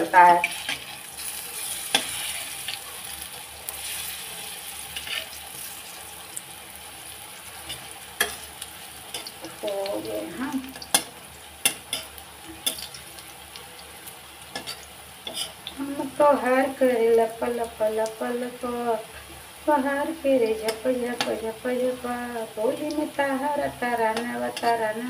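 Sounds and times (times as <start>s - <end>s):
food sizzling in oil: 0.0s - 25.0s
spatula scraping a pan: 0.4s - 2.8s, 3.7s - 5.9s, 7.6s - 9.4s, 14.5s - 15.7s.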